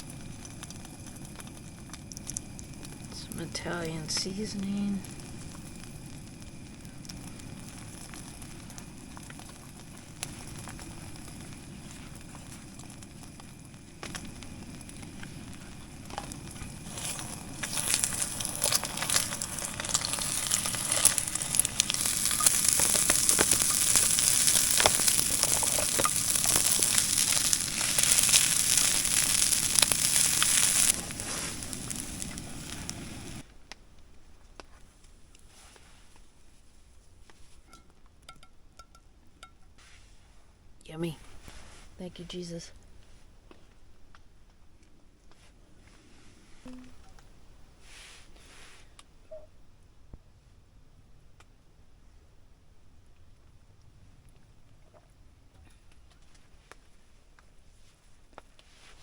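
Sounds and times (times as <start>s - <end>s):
eggs frying in fat: 0.0s - 33.9s, 46.6s - 48.4s
crackling sizzle: 0.0s - 59.0s
low steady hiss: 0.0s - 59.0s.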